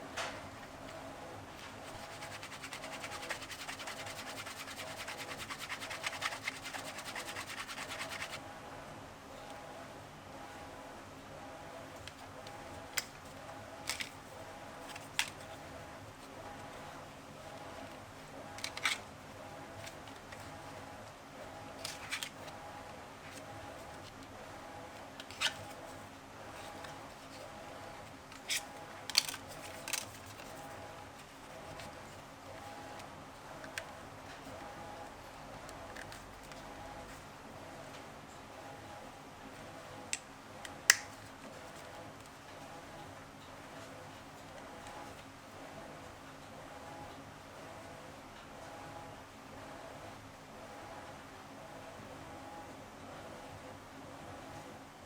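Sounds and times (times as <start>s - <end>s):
faint steady hum: 0.0s - 55.0s
rubbing on leather: 1.9s - 8.4s.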